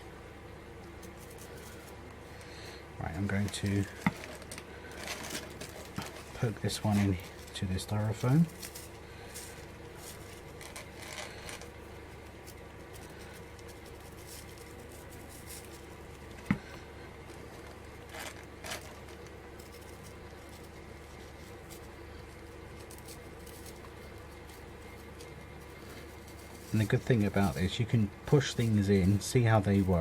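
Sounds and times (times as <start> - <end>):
steady low hum: 0.0 - 30.0
artificial leaves rustling: 0.8 - 30.0
stems pushed into styrofoam: 13.2 - 30.0.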